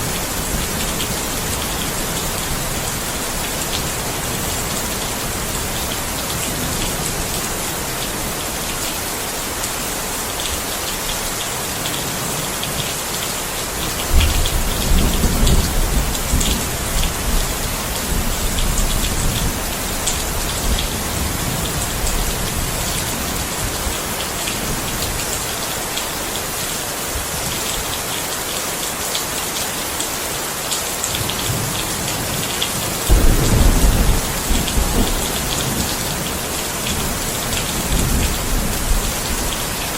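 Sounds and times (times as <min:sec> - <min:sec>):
steady rain: 0:00.0 - 0:39.9
low rumble of thunder: 0:14.1 - 0:23.1, 0:33.1 - 0:39.6.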